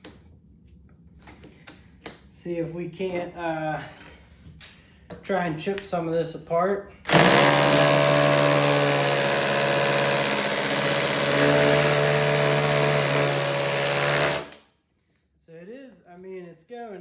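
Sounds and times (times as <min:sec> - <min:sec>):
hammer drill hammering into brick: 0:07.1 - 0:14.7.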